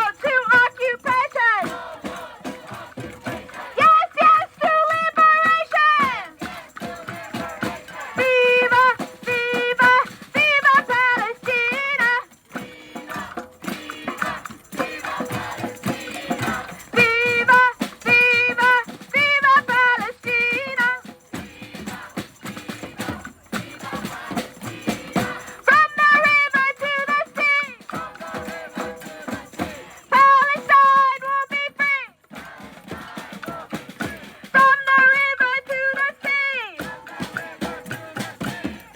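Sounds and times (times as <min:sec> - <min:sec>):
steady percussive beats: 0:00.0 - 0:38.9
person singing with vibrato: 0:03.5 - 0:32.2.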